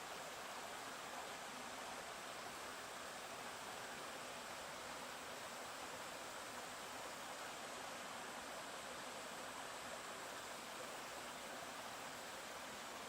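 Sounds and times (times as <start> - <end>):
mountain stream flowing: 0.0 - 13.0.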